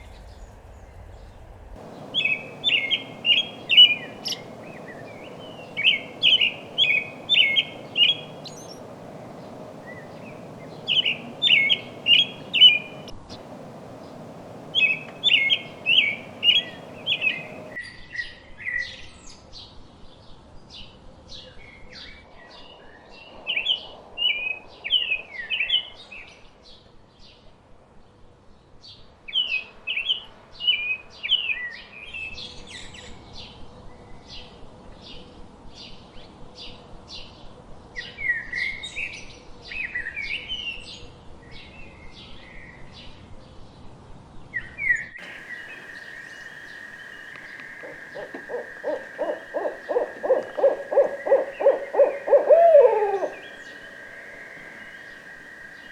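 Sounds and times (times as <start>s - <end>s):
owl hooting: 1.8s - 17.8s, 45.2s - 55.9s
songbirds chirping and warbling: 1.8s - 17.8s, 45.2s - 55.9s.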